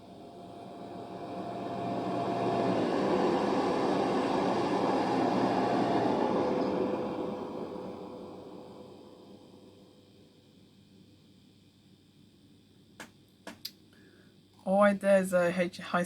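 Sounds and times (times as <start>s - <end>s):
train engine note dropping in pitch: 0.0s - 10.0s
wheels rushing on rail: 0.0s - 10.0s.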